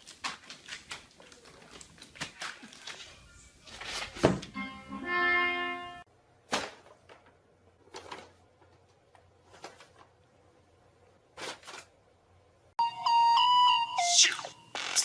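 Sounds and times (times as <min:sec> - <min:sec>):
pitched musical tone: 0:04.5 - 0:06.0, 0:12.8 - 0:14.6.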